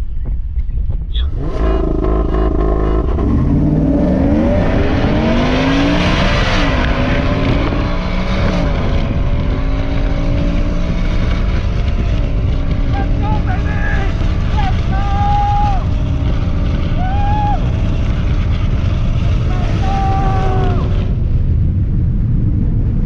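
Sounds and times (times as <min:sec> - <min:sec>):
truck engine at full throttle: 0:01.2 - 0:23.0.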